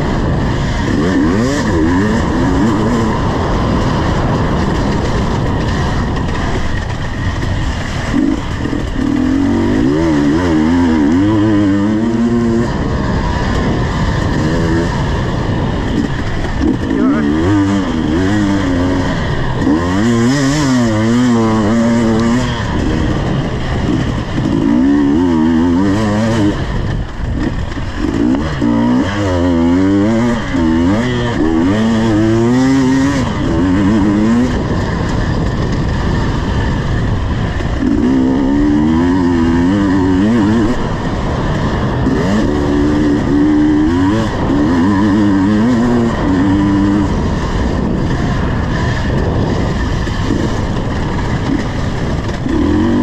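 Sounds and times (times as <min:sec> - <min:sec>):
two-stroke motorcycle engine revving: 0:00.0 - 0:53.0.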